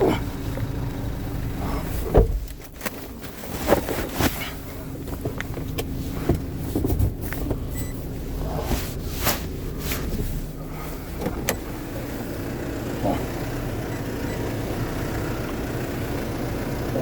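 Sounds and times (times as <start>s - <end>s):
vehicle engine idling: 0.0s - 17.0s
knocks and clatters: 1.8s - 7.7s.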